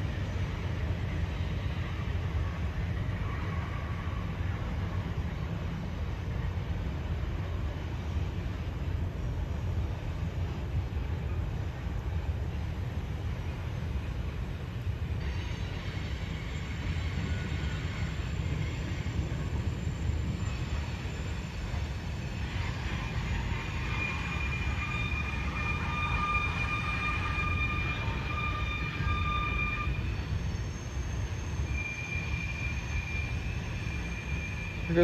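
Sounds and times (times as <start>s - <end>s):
freight train rumbling past: 0.0s - 35.0s
wheels squealing: 22.4s - 35.0s.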